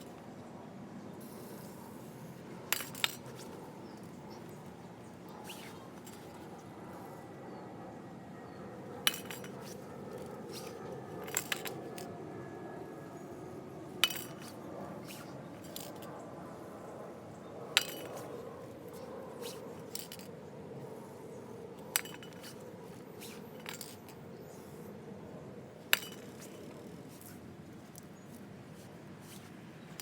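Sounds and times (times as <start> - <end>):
steady low hum: 0.0 - 30.0
metal tools clinking on metal: 2.7 - 4.1, 9.0 - 12.1, 14.0 - 16.1, 17.7 - 20.3, 21.8 - 24.5, 25.9 - 27.4.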